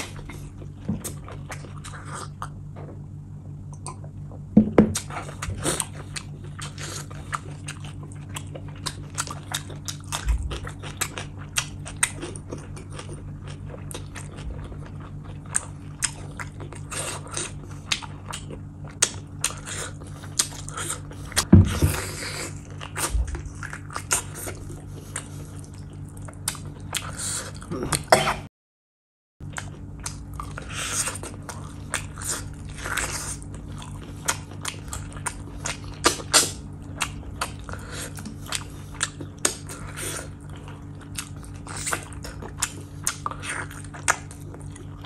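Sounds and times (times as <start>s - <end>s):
faint low hum: 0.0s - 28.5s, 29.4s - 45.0s
wet chewing and mouth clicks: 3.7s - 21.5s, 29.5s - 45.0s.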